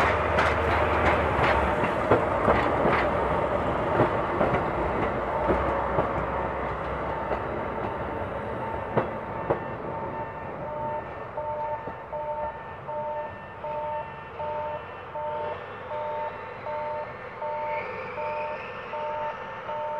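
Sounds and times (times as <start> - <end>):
diesel railcar moving over rails: 0.0 - 19.9
electronic two-note alarm beeping: 10.0 - 19.9.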